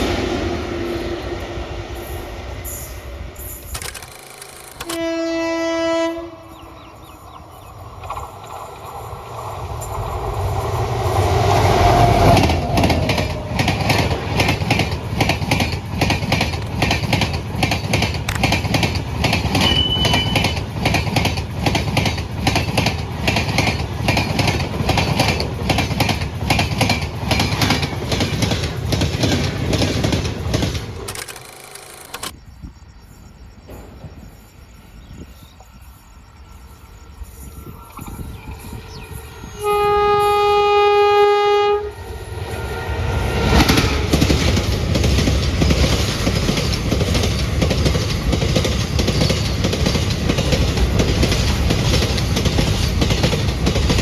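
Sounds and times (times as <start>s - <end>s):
train horn: 4.8s - 7.2s, 39.4s - 44.0s
train wheels clattering over rail joints: 7.8s - 32.4s, 43.4s - 54.0s.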